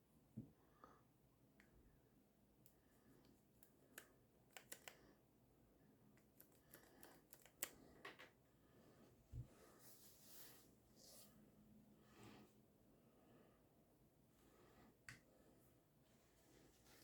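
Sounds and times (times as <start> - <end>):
small parts clicking and tapping: 2.6 - 5.1, 6.2 - 8.4.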